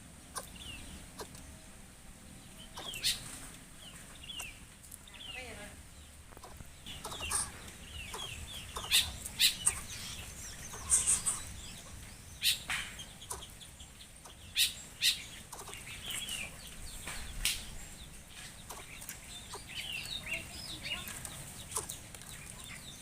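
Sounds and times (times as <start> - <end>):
bird chirps and clucks: 0.0 - 1.7, 2.3 - 23.0.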